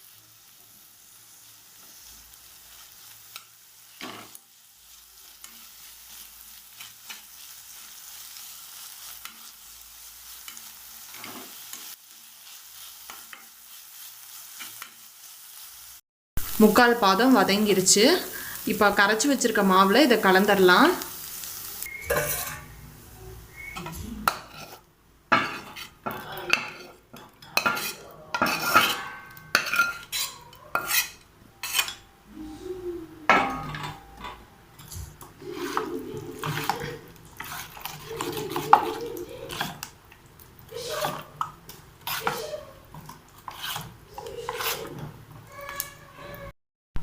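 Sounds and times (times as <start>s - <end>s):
spoon clattering and scraping bowl: 22.0s - 22.8s, 23.8s - 32.1s, 33.3s - 39.9s, 40.9s - 45.2s.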